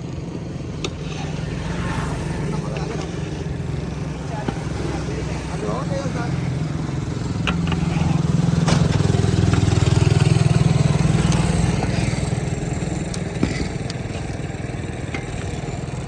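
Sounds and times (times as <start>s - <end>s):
small engine pulsing drone: 0.0s - 16.0s.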